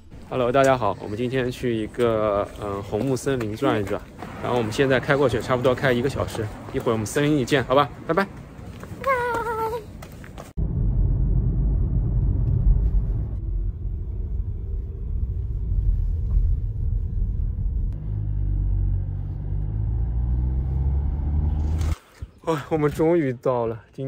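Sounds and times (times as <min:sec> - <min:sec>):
road noise: 0:00.0 - 0:23.9
car engine rumble: 0:07.9 - 0:22.0.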